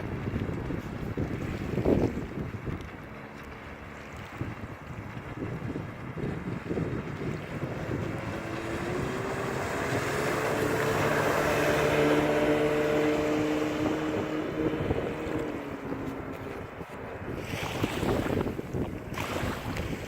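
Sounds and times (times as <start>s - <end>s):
outboard motor running: 0.0s - 20.0s
wind buffeting microphone: 0.0s - 20.0s.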